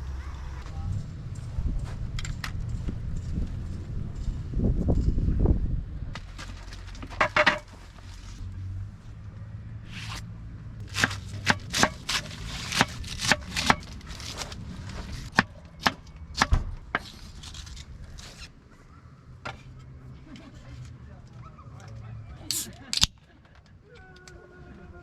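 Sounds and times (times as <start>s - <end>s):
sharp knocking or chopping: 10.9s - 13.9s, 15.3s - 17.1s.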